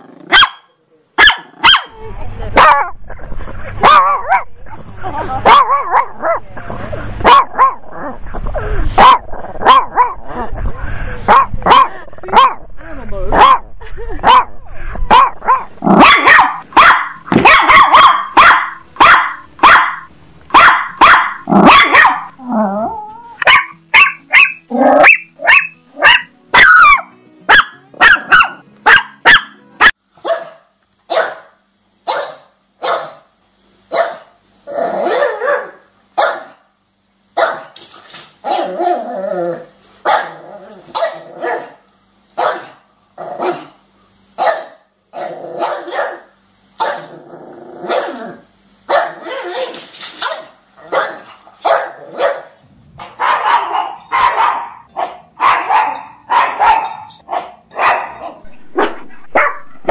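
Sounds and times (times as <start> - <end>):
dog barking: 0.3 - 1.9, 2.6 - 2.9, 3.8 - 4.5, 5.4 - 6.4, 7.2 - 7.8, 9.0 - 10.2, 11.3 - 12.6, 13.4 - 13.6, 14.2 - 14.5, 15.1 - 22.4, 23.4 - 33.3, 33.9 - 34.3, 35.1 - 36.6, 37.4 - 37.8, 40.1 - 41.8, 42.4 - 42.8, 44.4 - 44.8, 45.6 - 47.1, 47.9 - 48.2, 48.9 - 59.9.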